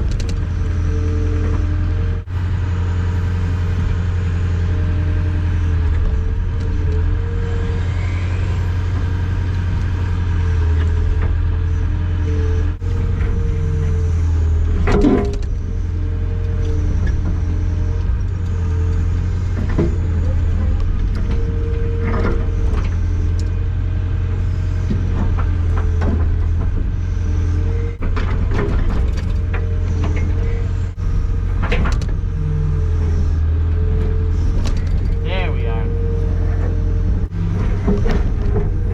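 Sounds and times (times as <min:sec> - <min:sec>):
excavator diesel engine running: 0:00.0 - 0:38.9
higher engine tone: 0:00.0 - 0:38.9.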